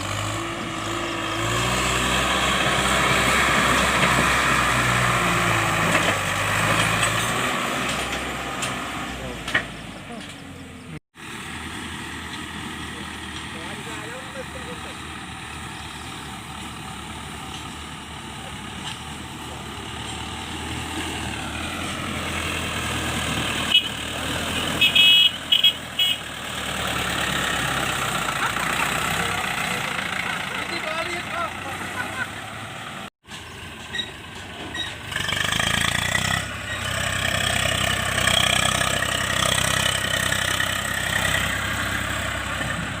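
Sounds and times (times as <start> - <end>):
diesel tractor engine running: 0.0 - 43.0.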